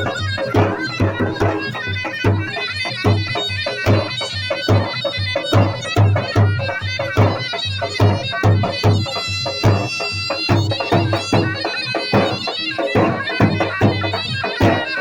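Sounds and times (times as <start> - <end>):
deep drum beats: 0.0 - 3.3
reed wind instrument melody: 0.0 - 15.0.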